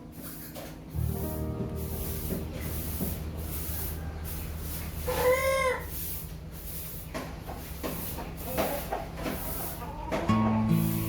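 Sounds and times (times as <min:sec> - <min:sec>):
steady low drone: 0:00.0 - 0:04.8.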